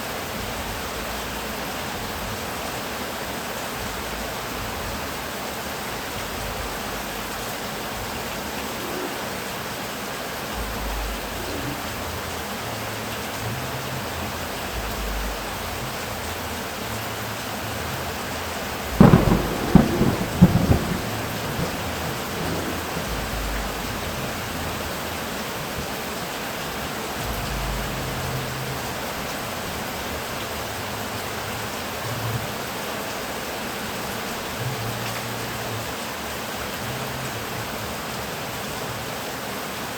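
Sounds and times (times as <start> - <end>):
heavy rain: 0.0 - 39.9
thunder cracks and rumbling: 18.7 - 26.0.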